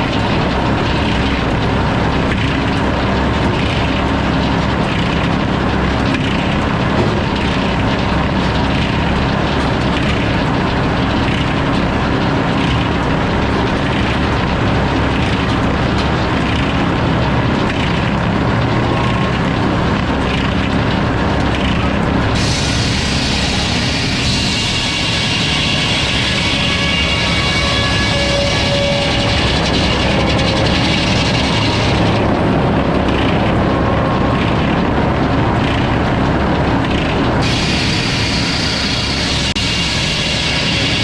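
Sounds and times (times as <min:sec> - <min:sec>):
sawmill machine drone: 0:00.0 - 0:41.0
saw blade cutting wood: 0:22.4 - 0:32.4, 0:37.4 - 0:41.0.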